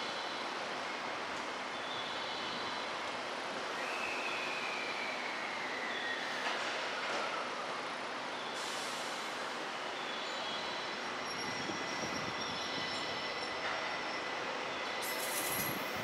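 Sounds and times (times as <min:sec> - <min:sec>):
train wheels on rails: 0:02.6 - 0:16.0
high wheel squeal: 0:10.3 - 0:16.0.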